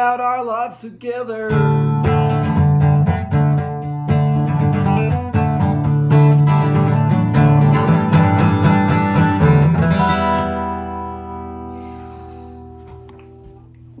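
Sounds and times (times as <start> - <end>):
acoustic guitar strumming: 0.0 - 13.9.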